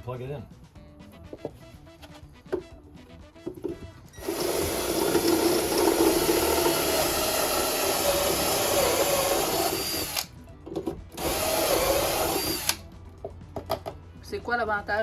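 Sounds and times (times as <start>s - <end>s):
power drill boring: 4.2s - 10.3s, 11.2s - 12.8s.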